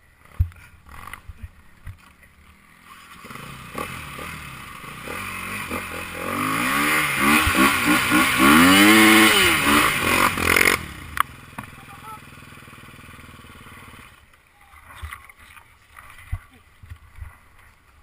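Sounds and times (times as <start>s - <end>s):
motorcycle engine revving: 2.5s - 14.3s.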